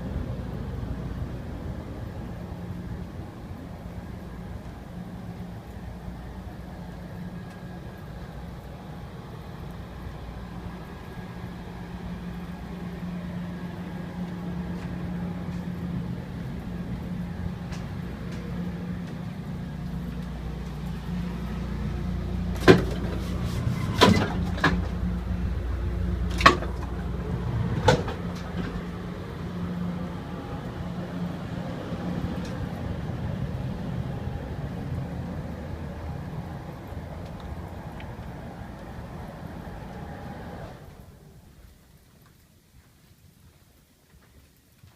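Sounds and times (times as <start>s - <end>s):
low hum in passenger car: 0.0s - 42.0s
sharp knocks and clunks: 22.6s - 25.0s.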